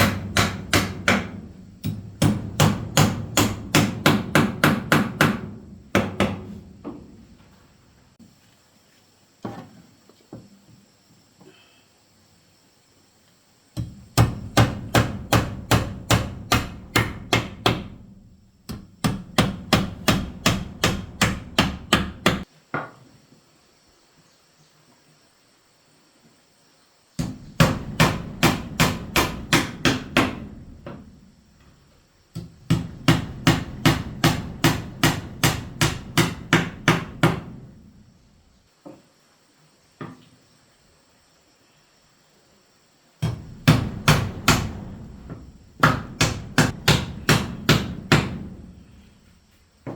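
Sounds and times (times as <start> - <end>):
hammer striking wood: 0.0 - 7.1, 13.8 - 18.1, 18.7 - 22.9, 27.2 - 31.0, 32.4 - 37.7, 43.2 - 48.6.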